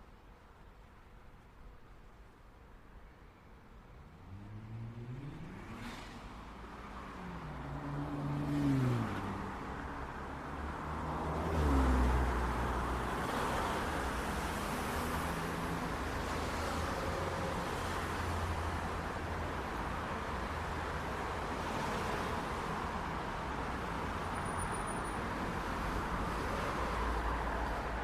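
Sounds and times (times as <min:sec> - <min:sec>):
cars accelerating and passing: 0:04.0 - 0:28.0
traffic hum: 0:06.4 - 0:28.0.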